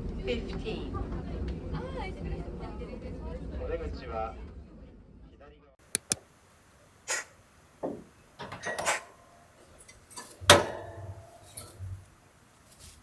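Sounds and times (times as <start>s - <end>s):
objects clicking and knocking: 6.9s - 13.0s.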